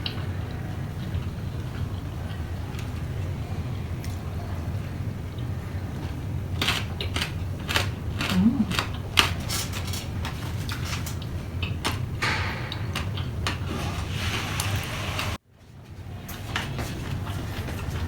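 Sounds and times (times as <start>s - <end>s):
person humming: 8.3s - 8.8s.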